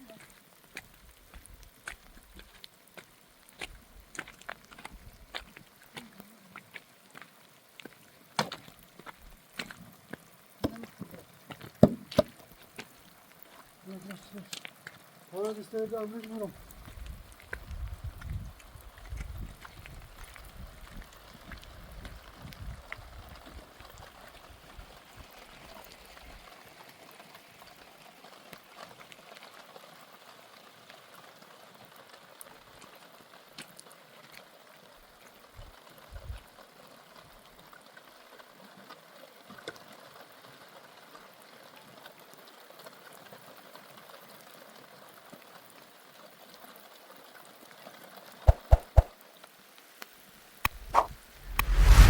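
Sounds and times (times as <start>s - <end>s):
drips and ticks: 0.0s - 26.5s
steady rain hiss: 0.0s - 28.0s.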